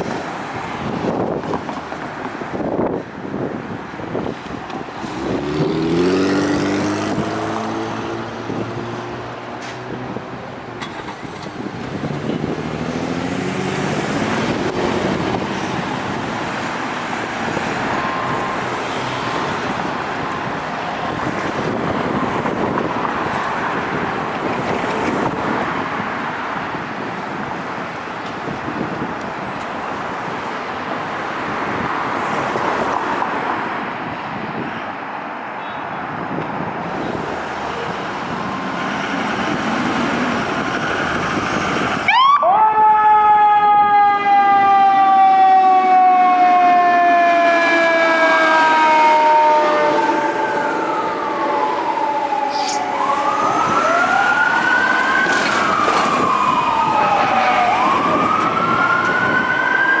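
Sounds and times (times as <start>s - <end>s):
traffic noise: 0.0s - 60.0s
electronic wail sirens: 13.9s - 23.9s, 40.3s - 60.0s
mechanical siren winding down: 42.1s - 60.0s.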